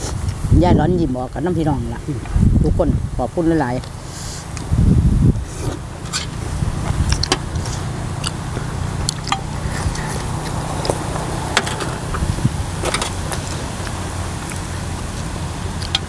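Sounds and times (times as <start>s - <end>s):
low rumble: 0.0s - 16.0s
people chewing with lip smacks: 6.8s - 16.0s.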